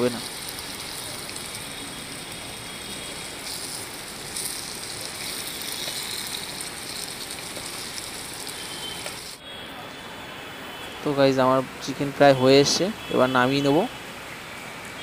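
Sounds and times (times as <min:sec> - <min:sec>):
meat sizzling in a pot: 0:00.0 - 0:09.4.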